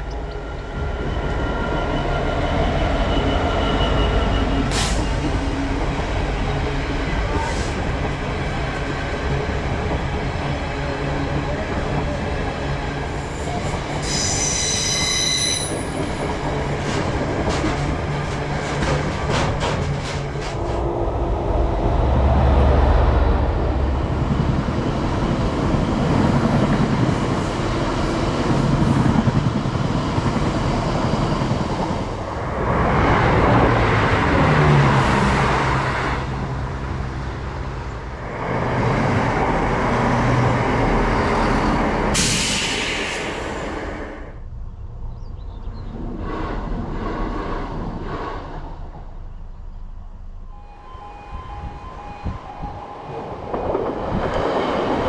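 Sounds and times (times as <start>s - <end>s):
diesel train running: 0.0s - 55.0s
high-pitched wheel squeal: 13.5s - 16.2s, 50.5s - 53.3s.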